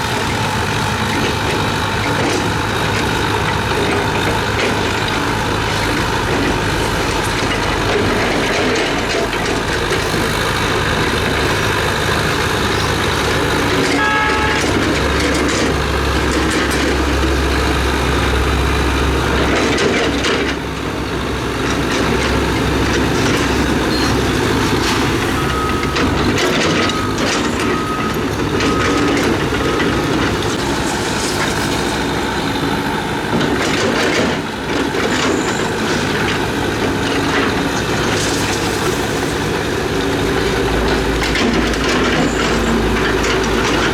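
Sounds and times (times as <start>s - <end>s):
diesel engines running: 0.0s - 43.9s
steel tracks clanking: 0.0s - 43.9s
reversing alarm beeping: 13.9s - 14.9s, 23.7s - 30.3s.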